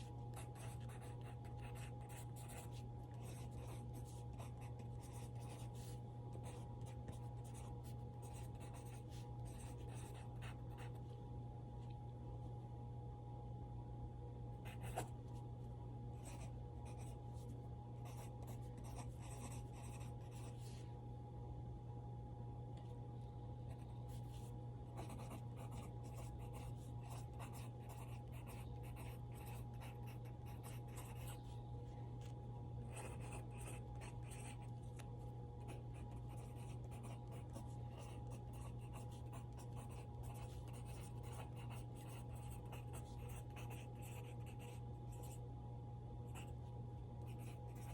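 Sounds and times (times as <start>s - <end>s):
steady low hum: 0.0s - 47.9s
pencil scratching on paper: 0.4s - 11.0s, 18.0s - 20.7s, 24.2s - 31.4s, 32.9s - 34.7s, 35.7s - 45.4s.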